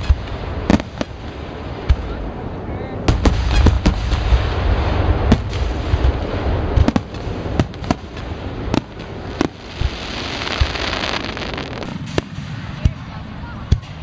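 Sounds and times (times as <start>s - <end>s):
firework bangs: 0.0s - 14.0s
low rumble of shells bursting: 3.1s - 13.0s.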